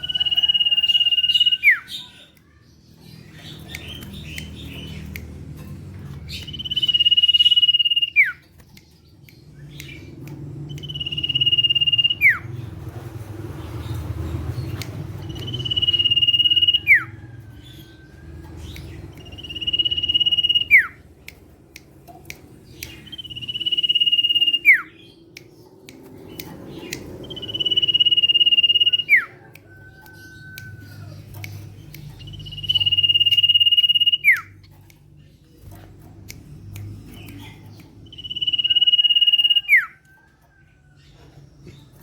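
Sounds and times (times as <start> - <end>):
bird whistling call: 10.8 - 12.4, 15.4 - 17.1, 23.1 - 24.9, 32.3 - 34.5, 38.1 - 40.0.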